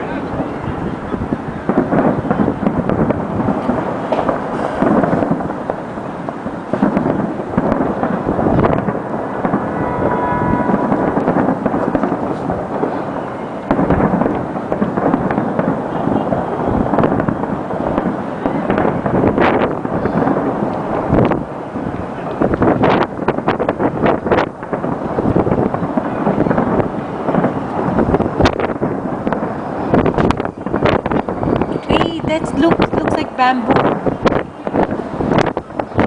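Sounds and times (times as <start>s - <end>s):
fireworks banging and crackling: 0.0s - 36.0s
high steady tone: 9.6s - 12.0s.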